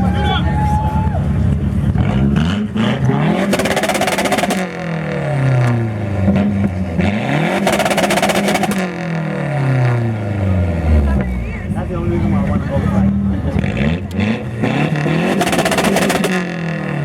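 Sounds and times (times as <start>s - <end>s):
car engine revving: 1.8s - 11.4s, 12.4s - 17.0s
exhaust crackling: 2.6s - 11.2s, 14.0s - 17.0s.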